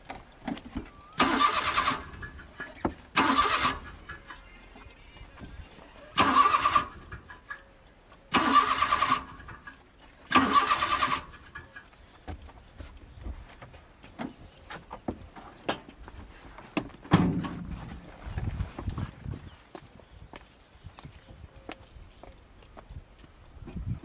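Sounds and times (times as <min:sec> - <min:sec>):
car starter motor cranking: 0:01.0 - 0:04.5, 0:06.0 - 0:07.6, 0:08.3 - 0:11.9.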